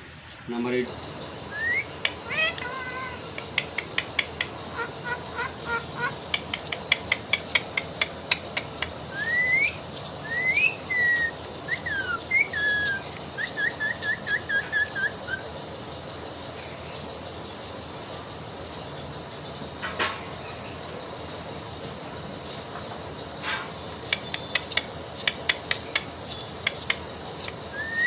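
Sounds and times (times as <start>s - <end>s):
parakeet whistling: 1.4s - 7.7s, 8.3s - 15.5s, 27.7s - 28.0s
parakeet sharp clicks: 1.6s - 9.7s, 24.1s - 28.0s.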